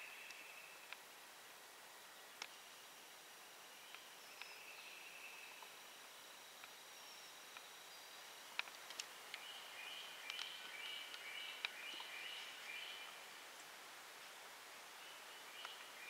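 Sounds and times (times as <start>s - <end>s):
small bird singing: 3.7s - 5.7s, 9.4s - 13.3s, 15.0s - 16.0s.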